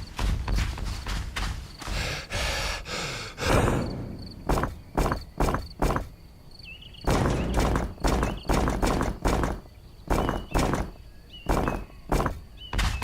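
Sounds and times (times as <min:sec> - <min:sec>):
sharp knocks: 0:03.4 - 0:06.2, 0:07.0 - 0:13.0.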